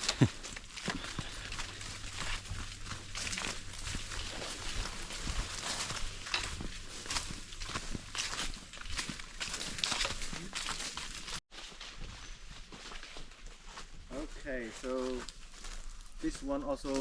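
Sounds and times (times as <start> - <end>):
vegetation brushing: 0.0 - 11.4
footsteps crunching through leaf litter: 0.0 - 17.0.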